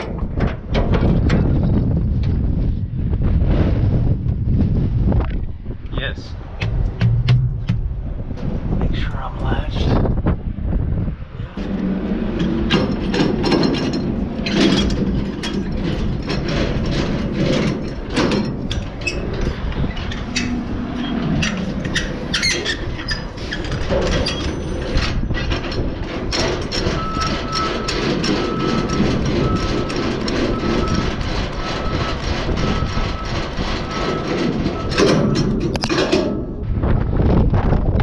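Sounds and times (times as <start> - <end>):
sharp knocks and squeaks: 0.0 - 2.4, 11.6 - 36.6
chassis rattling and clanking: 0.0 - 2.8, 6.2 - 38.0
truck engine running: 10.5 - 24.0.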